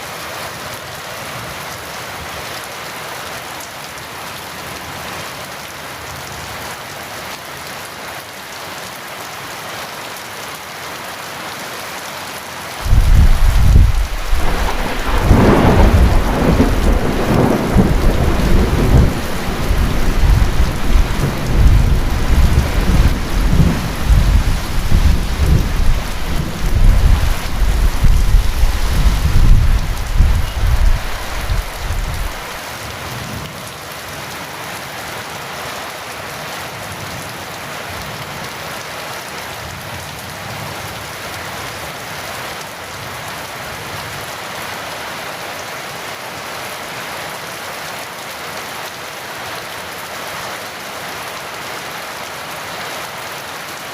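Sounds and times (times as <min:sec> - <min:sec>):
heavy rain: 0:00.0 - 0:53.9
thunder rumbling and cracking: 0:12.8 - 0:32.5.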